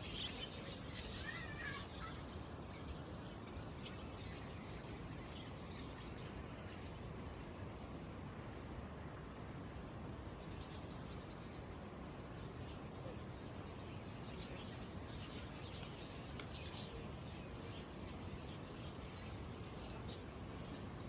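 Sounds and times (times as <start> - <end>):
high-pitched insect trill: 0.0 - 8.6
songbirds chirping: 0.0 - 9.4, 10.1 - 21.0.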